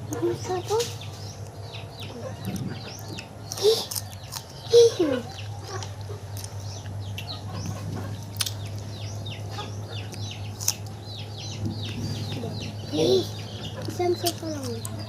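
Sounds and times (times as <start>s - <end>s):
chickens clucking: 0.0s - 15.0s
small birds chirping: 0.0s - 15.0s
steady low hum: 0.0s - 15.0s.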